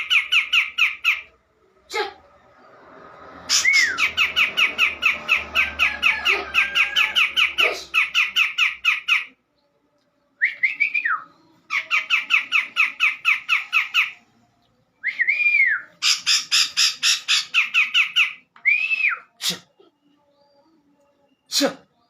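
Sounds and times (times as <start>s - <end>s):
bird harsh chattering: 16.0s - 18.4s.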